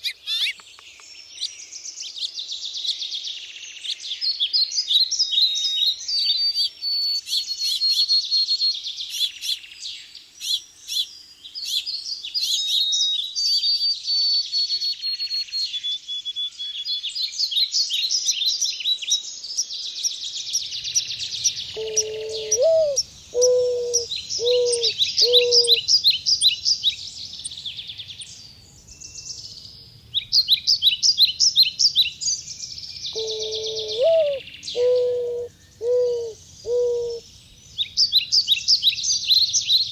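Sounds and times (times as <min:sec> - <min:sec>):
songbirds chirping and trilling: 0:00.0 - 0:39.9
dove cooing: 0:21.7 - 0:25.9, 0:33.2 - 0:37.2.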